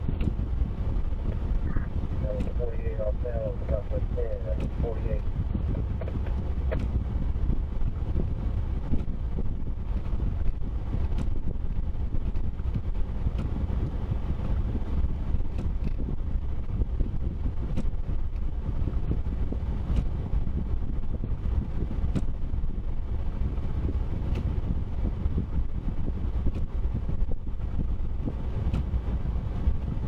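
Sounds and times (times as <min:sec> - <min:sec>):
vehicle rumbling: 0:00.0 - 0:30.0
faint ticks: 0:19.8 - 0:20.2, 0:28.4 - 0:29.1.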